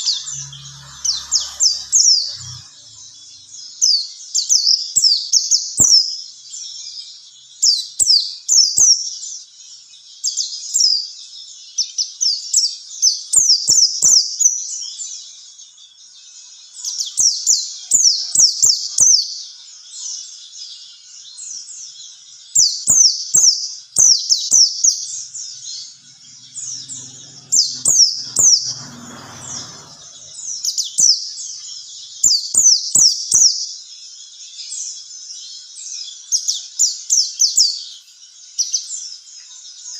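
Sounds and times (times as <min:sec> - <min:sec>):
bird chirping in rapid runs: 0:00.0 - 0:39.9
brief low rumble: 0:25.6 - 0:30.8.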